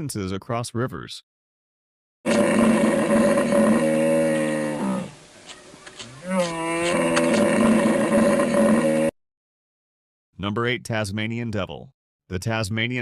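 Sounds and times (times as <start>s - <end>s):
hippopotamus calling: 2.3s - 9.1s.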